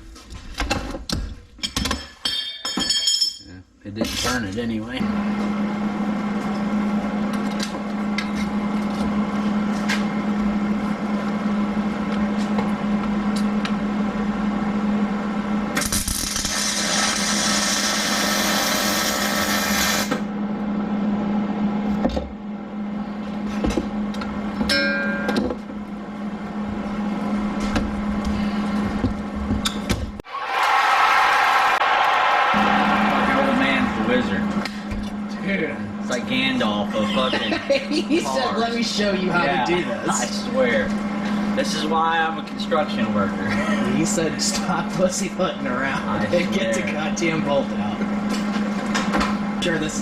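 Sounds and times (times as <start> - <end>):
power tool motor running: 15.9 - 20.3.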